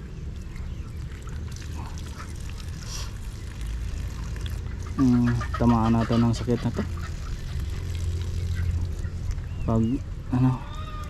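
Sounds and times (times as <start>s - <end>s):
chickens clucking: 4.5s - 9.4s.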